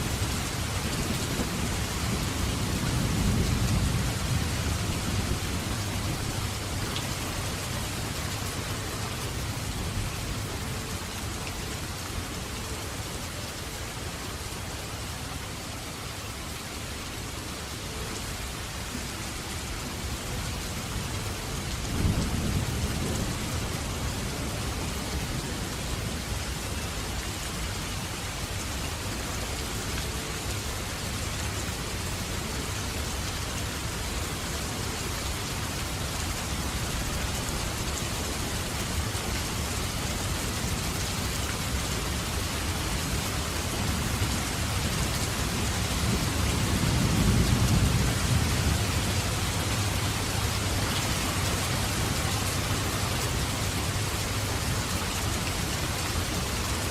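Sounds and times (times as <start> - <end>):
steady rain: 0.0 - 56.9
low rolling thunder: 1.0 - 6.7, 45.9 - 50.0.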